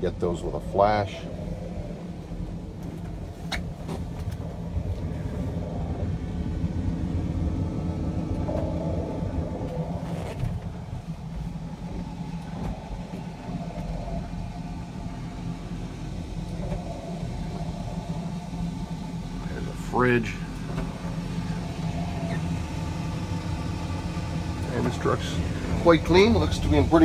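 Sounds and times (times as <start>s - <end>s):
engine rumbling: 0.0s - 27.0s
faint rustles: 8.1s - 19.7s.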